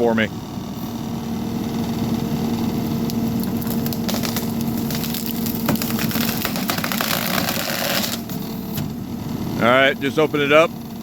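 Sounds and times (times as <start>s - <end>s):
skid steer engine running: 0.0s - 11.0s
wood cracking and splintering: 2.9s - 8.4s.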